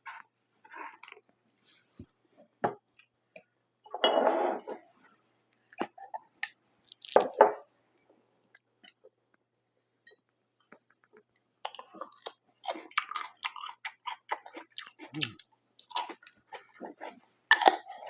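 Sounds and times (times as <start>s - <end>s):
wet mouth clicks and smacks: 6.4s - 7.3s
chewing pizza: 10.7s - 18.0s.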